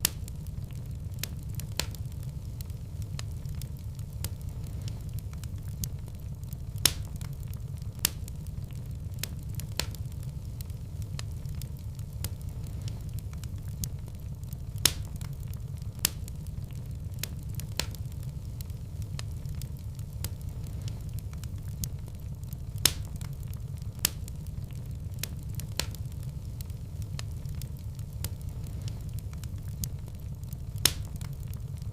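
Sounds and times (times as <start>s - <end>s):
low rumble of flames: 0.0s - 31.9s
wood fire crackling: 0.0s - 31.9s.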